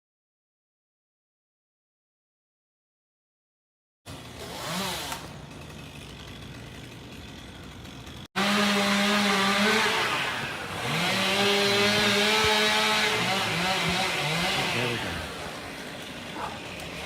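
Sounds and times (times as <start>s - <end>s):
chainsaw running at high revs: 4.1s - 17.0s.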